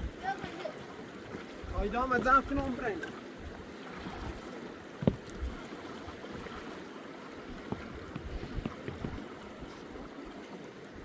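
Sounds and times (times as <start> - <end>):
river water rushing: 0.0 - 11.0
light knocks and clicks: 5.0 - 5.5.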